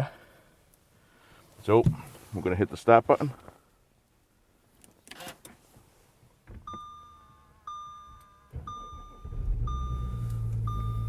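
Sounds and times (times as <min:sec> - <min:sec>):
dashboard warning chime: 0:06.6 - 0:11.0
diesel engine idling: 0:08.9 - 0:11.0.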